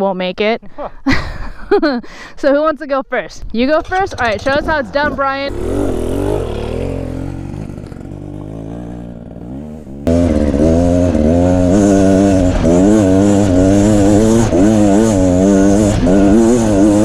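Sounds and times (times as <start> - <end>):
dirt bike engine revving: 3.7 - 17.0.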